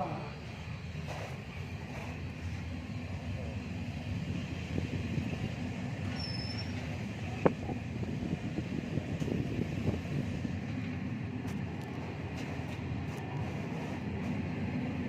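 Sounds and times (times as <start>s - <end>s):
brief high squeak: 6.1s - 6.9s.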